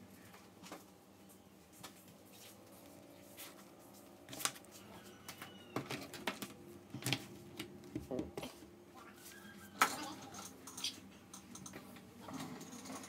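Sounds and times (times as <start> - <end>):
small tools clicking and tapping: 9.9 - 13.0.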